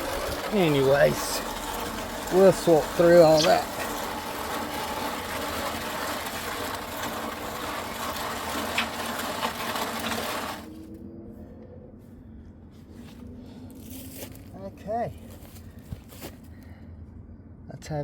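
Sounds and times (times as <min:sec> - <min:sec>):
mixer grinding wet concrete: 0:00.0 - 0:10.8.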